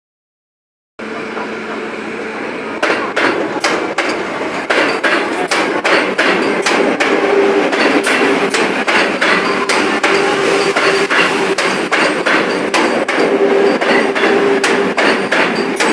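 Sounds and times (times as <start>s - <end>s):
train wheels clacking over rail joints: 2.7s - 15.9s.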